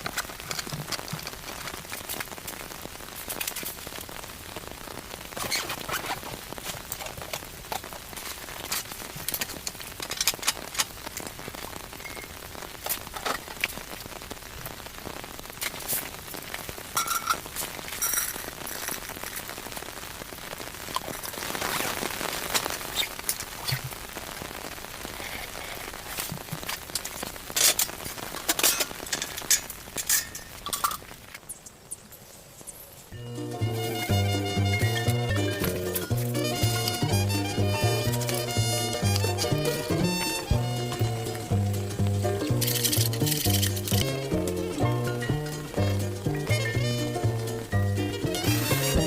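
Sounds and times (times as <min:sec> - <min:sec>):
sharp clicks and pops: 0:00.0 - 0:04.3, 0:05.1 - 0:19.9, 0:20.5 - 0:32.8, 0:40.8 - 0:44.6
rain pattering: 0:00.0 - 0:49.0.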